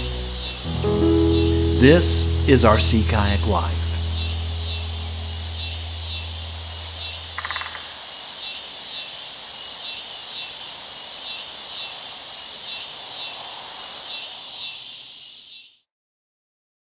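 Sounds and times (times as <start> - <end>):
low held music note: 0.0 - 7.4
insects trilling: 0.0 - 15.8.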